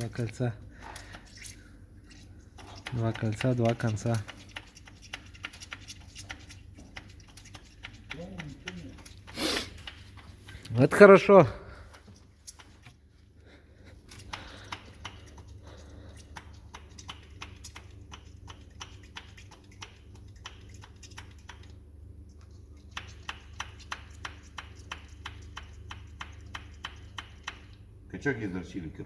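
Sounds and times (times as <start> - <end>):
steady low hum: 0.0 - 29.0
rapid mechanical clicking: 2.6 - 10.6.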